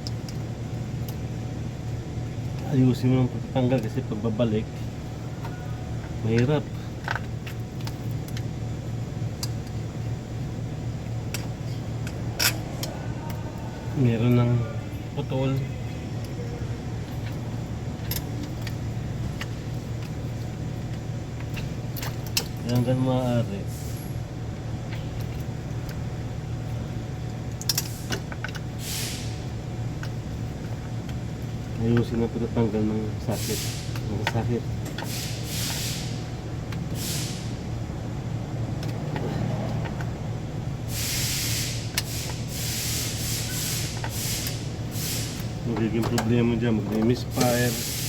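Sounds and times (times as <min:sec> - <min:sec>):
steady low hum: 0:00.0 - 0:48.0
tools and parts clicking: 0:05.4 - 0:08.5, 0:11.2 - 0:13.4, 0:17.0 - 0:23.0, 0:27.3 - 0:28.7, 0:45.2 - 0:48.0.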